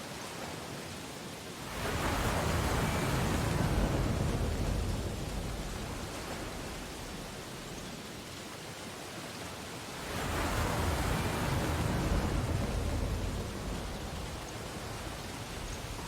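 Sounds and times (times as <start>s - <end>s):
ocean wave breaking: 1.6s - 7.8s, 9.9s - 16.0s.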